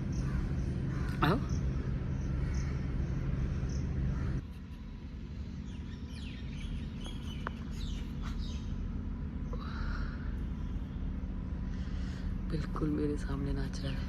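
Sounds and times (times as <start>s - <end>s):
low steady rumble: 0.0s - 14.0s
small birds chirping: 0.0s - 14.0s.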